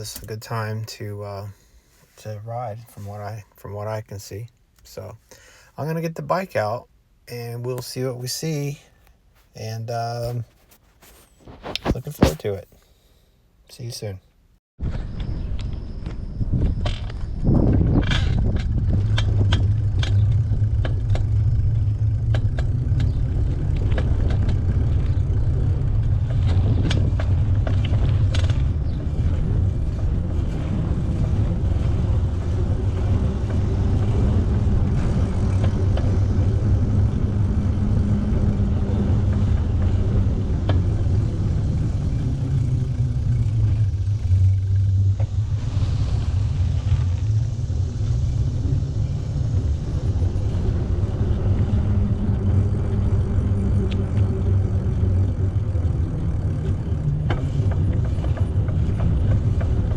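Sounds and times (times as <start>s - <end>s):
wind buffeting microphone: 14.8s - 59.9s.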